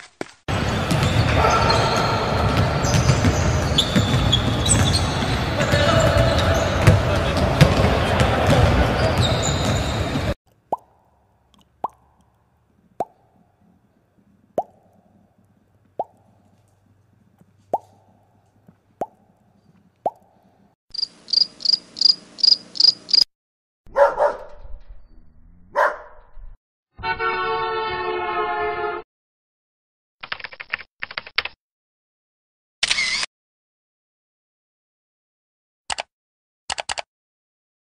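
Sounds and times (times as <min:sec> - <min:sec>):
water drop plops: 0:10.5 - 0:12.3, 0:14.6 - 0:15.0, 0:16.0 - 0:16.3, 0:20.0 - 0:20.3
cricket chirping: 0:20.9 - 0:23.3
dog barking: 0:23.9 - 0:24.6, 0:25.7 - 0:26.2.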